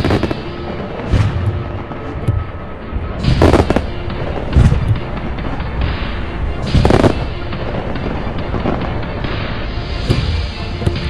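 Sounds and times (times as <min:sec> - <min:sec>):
firework booms: 0:00.0 - 0:02.6, 0:03.2 - 0:05.6, 0:06.6 - 0:08.0
background music: 0:00.0 - 0:11.0
crackling firework bursts: 0:03.2 - 0:03.9, 0:06.7 - 0:07.3.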